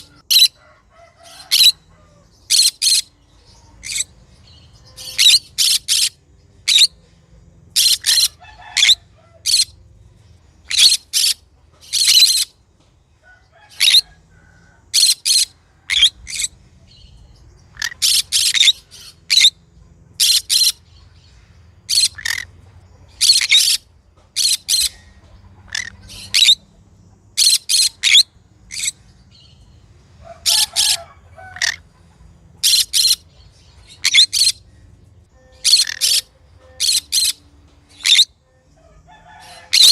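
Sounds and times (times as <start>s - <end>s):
parrot shrill screeches: 30.4s - 31.8s, 35.6s - 37.4s, 39.6s - 39.9s.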